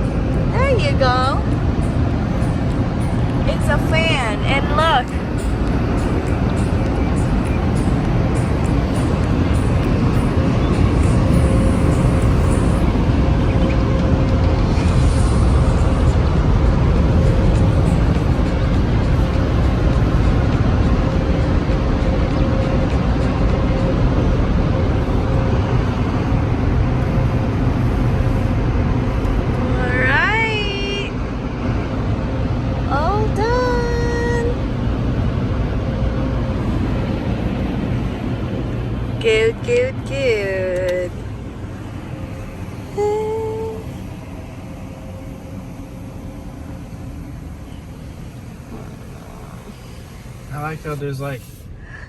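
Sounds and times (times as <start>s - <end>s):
car cabin rumble: 0.0s - 14.8s, 39.2s - 51.6s
car wash air dryer blowers: 40.4s - 52.0s.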